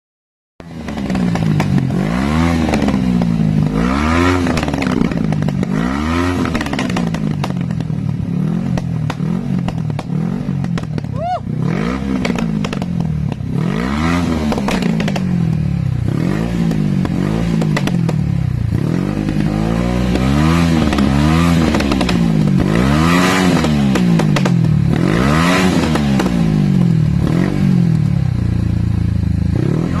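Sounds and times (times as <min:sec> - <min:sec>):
motorcycle engine revving: 0:00.6 - 0:30.0
exhaust pops and crackles: 0:00.7 - 0:01.9, 0:04.4 - 0:05.8, 0:06.4 - 0:11.3, 0:12.2 - 0:13.5, 0:14.4 - 0:15.7, 0:16.6 - 0:25.0.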